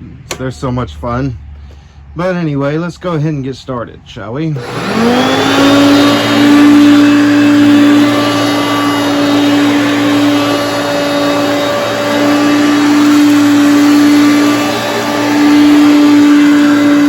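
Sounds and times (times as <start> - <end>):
vacuum airflow rush: 4.6 - 17.0
vacuum cleaner motor: 4.6 - 17.0.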